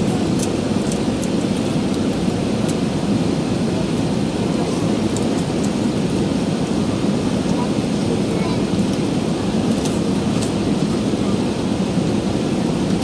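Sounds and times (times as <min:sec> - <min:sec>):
aircraft cabin engine rumble: 0:00.0 - 0:13.0.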